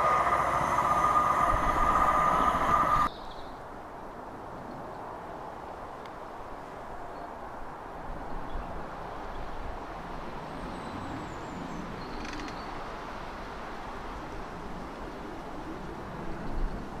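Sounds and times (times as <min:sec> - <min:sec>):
electric locomotive rumble: 0:00.0 - 0:03.1.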